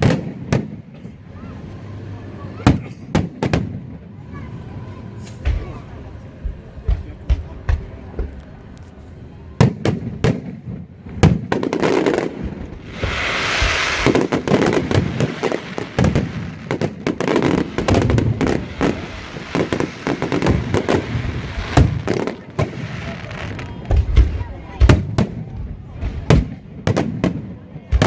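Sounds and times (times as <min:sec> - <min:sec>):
fireworks bangs: 0:00.0 - 0:01.1, 0:02.6 - 0:04.1, 0:09.5 - 0:28.0
fireworks hissing crackle: 0:11.0 - 0:25.1.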